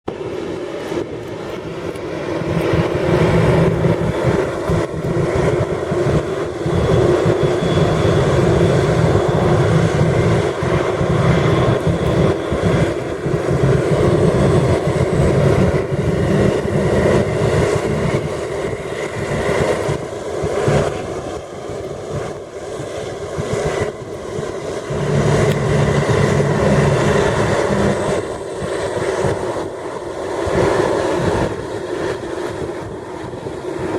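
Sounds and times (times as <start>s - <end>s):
jet engine rumble: 0.1s - 33.9s
wind buffeting microphone: 0.1s - 33.9s.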